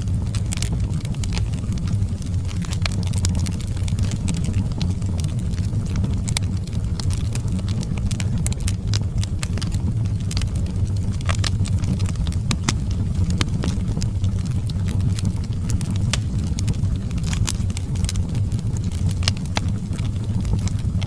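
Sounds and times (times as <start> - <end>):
fire crackling and popping: 0.0 - 21.0
fire rumbling in fireplace: 0.0 - 21.0.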